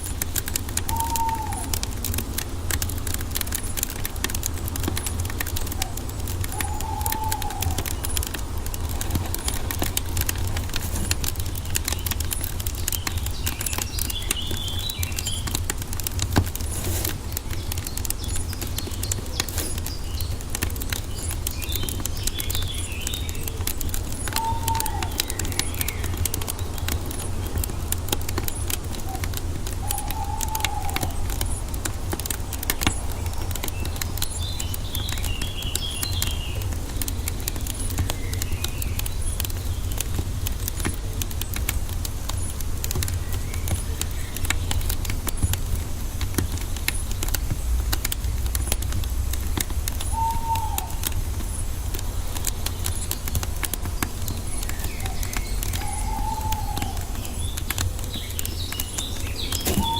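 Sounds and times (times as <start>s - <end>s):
wood fire crackling and popping: 0.0s - 59.9s
low arching bird call: 0.8s - 2.0s, 5.4s - 11.2s, 24.2s - 26.4s, 28.9s - 31.7s, 50.0s - 51.6s, 54.2s - 59.9s
high bird chirps: 54.4s - 59.9s.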